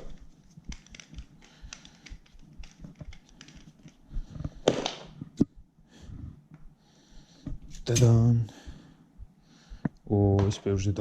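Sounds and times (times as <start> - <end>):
handling clicks and taps: 0.0 - 4.6.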